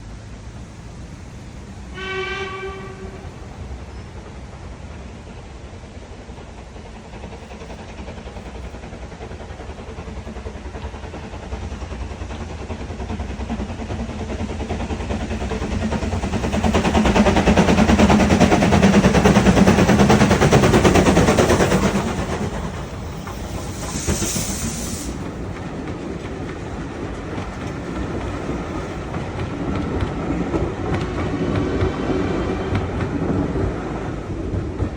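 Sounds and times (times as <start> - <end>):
steam locomotive exhaust beats: 0.0 - 34.9
train wheels clattering on rails: 2.0 - 34.9
high-pitched hiss: 21.7 - 25.6.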